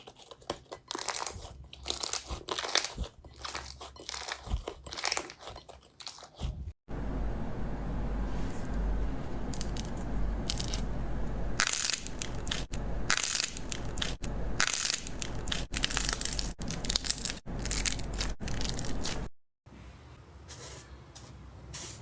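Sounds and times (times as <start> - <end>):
slime crackling and crunching: 0.0 - 6.6, 9.6 - 10.9, 11.6 - 19.3.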